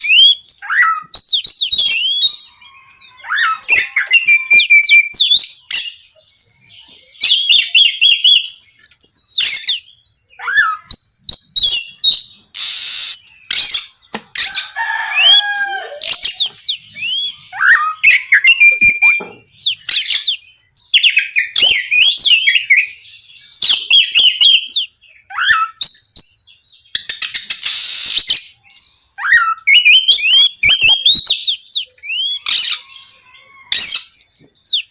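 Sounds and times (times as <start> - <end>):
bird singing whistles and trills: 0.0 - 34.9
harsh rasping bird notes: 12.1 - 20.3.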